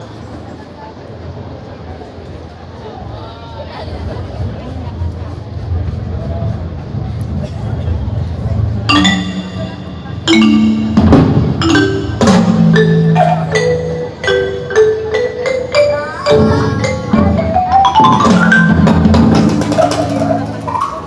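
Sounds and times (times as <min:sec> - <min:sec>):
ringing mallet notes: 0:08.9 - 0:21.0.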